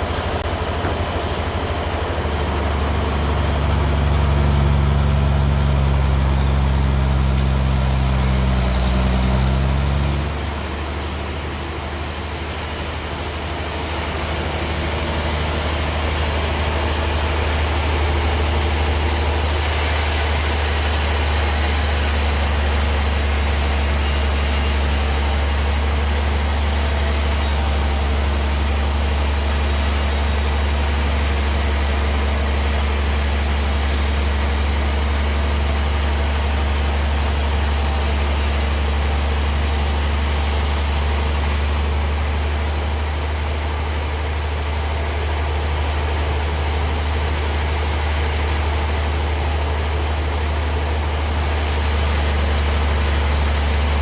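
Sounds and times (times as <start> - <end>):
sawmill drive hum: 0.0 - 54.0
band blade sawing log hiss: 3.2 - 42.2, 49.8 - 54.0.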